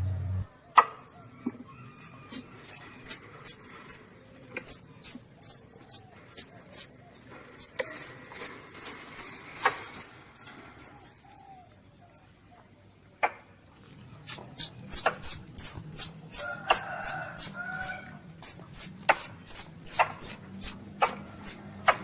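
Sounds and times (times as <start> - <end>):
animal high squeaks: 1.9 - 11.0, 14.3 - 22.0
sharp clicks: 14.2 - 17.6.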